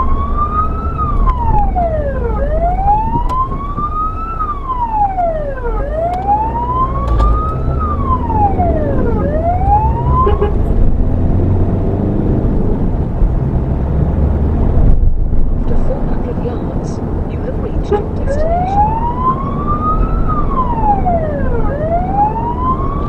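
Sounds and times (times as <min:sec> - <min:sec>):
siren wailing: 0:00.0 - 0:10.6, 0:17.9 - 0:23.0
road noise: 0:00.0 - 0:23.0
vehicle engine: 0:00.0 - 0:23.0.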